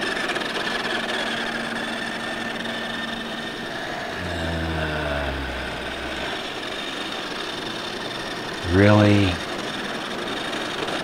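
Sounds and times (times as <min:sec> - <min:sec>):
toy car motor whining: 0:00.0 - 0:11.0
lower hum: 0:02.9 - 0:07.5, 0:08.5 - 0:09.5.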